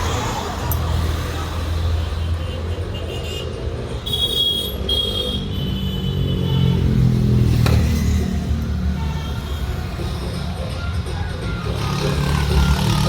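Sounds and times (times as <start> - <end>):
vehicle engine revving: 11.6 - 13.0.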